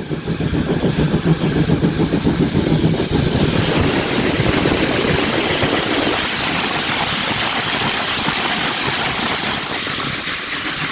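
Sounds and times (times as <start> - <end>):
heavy low rumble: 0.0 - 8.7
steam hissing: 0.0 - 10.9
steam locomotive running noise: 0.0 - 10.9.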